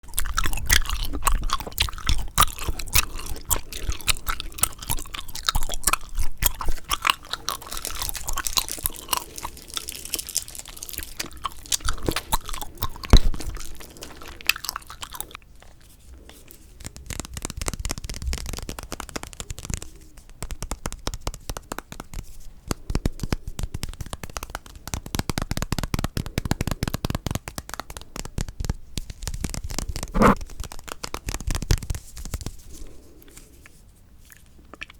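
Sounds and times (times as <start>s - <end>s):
gum chewing mouth sounds: 0.0s - 16.3s, 29.8s - 30.4s.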